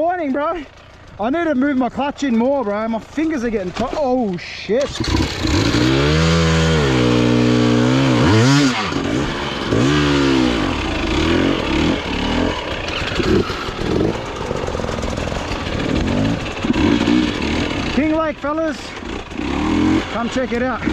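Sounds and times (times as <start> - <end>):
dirt bike engine revving: 0.0 - 20.9.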